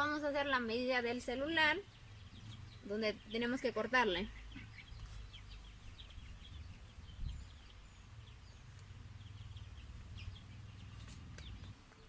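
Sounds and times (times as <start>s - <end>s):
birds chirping faintly: 0.0s - 12.0s
steady low rumble: 4.2s - 11.8s.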